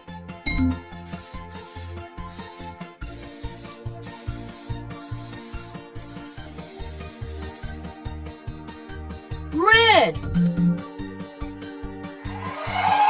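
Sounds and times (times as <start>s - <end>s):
background music with beat: 0.0s - 13.0s
paint spraying bursts: 1.0s - 8.0s.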